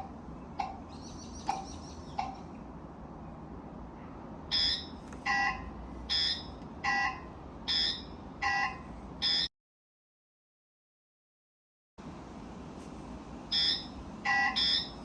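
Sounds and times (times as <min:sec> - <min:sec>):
scooter turn-signal beeping: 0:04.5 - 0:09.5, 0:13.5 - 0:15.0.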